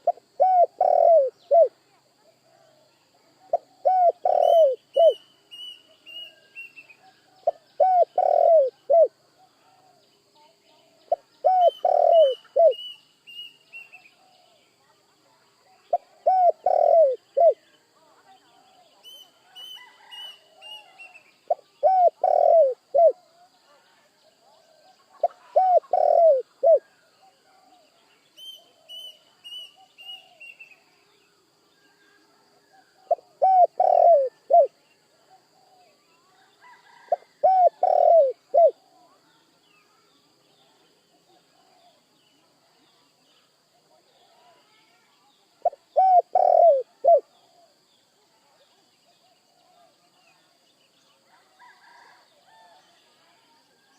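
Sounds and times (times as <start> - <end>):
dove cooing: 0.0 - 1.8, 3.5 - 5.2, 7.0 - 10.0, 11.1 - 12.8, 15.9 - 17.6, 19.8 - 23.2, 24.7 - 27.6, 32.7 - 34.8, 36.7 - 38.9, 45.6 - 47.8
small bird chirping: 2.7 - 51.2.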